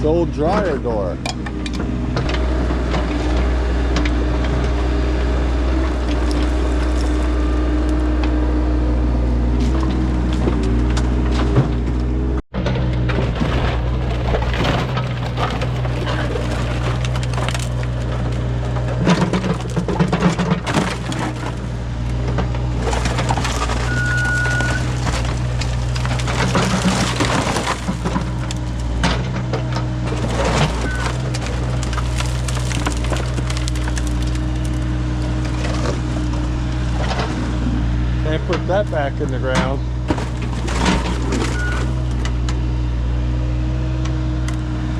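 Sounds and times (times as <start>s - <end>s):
digging machine engine running: 0.0s - 44.9s
bucket scraping and crunching debris: 5.5s - 8.1s, 12.6s - 42.4s
clattering and cracking: 5.8s - 7.3s, 12.6s - 37.5s, 39.4s - 42.6s.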